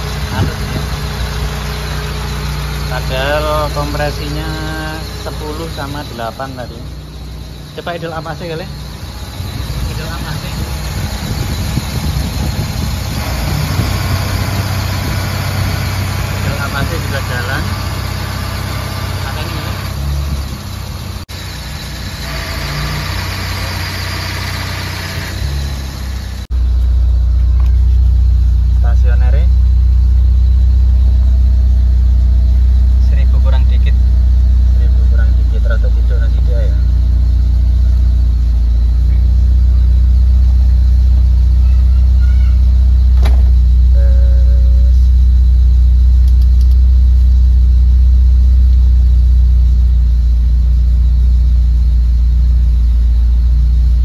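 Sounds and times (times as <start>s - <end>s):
car engine idling: 0.0s - 54.0s
sharp click: 46.2s - 46.9s.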